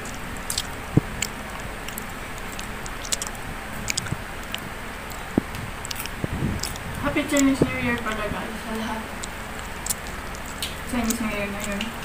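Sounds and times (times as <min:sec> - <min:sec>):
chicken being torn and chewed: 0:00.0 - 0:08.2, 0:09.2 - 0:11.9
steady background hiss: 0:00.0 - 0:12.0.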